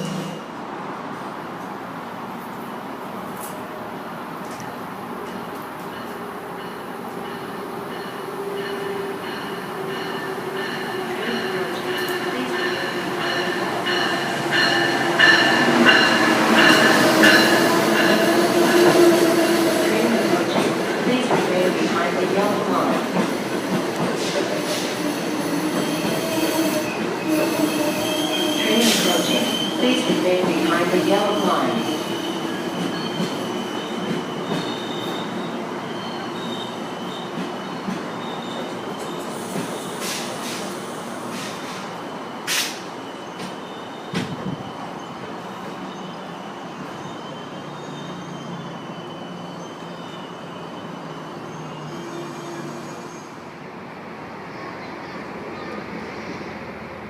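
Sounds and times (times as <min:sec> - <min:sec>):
train rumbling: 0:00.0 - 0:46.2
high wheel squeals: 0:25.7 - 0:30.0, 0:45.9 - 0:53.3.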